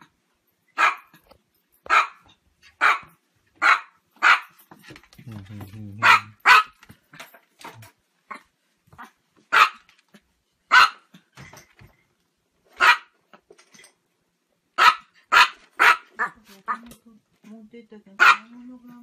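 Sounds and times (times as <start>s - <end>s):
small dog barking: 0.8s - 1.2s, 1.8s - 4.6s, 6.0s - 6.8s, 9.0s - 9.9s, 10.7s - 11.1s, 12.8s - 13.2s, 14.8s - 16.8s, 18.2s - 18.6s.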